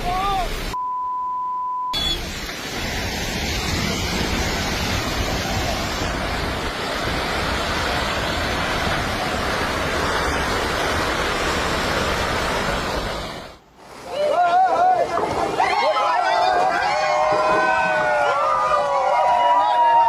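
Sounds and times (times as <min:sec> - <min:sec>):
one-pitch bleep: 0:00.8 - 0:02.2
landslide rushing roar: 0:02.0 - 0:20.0.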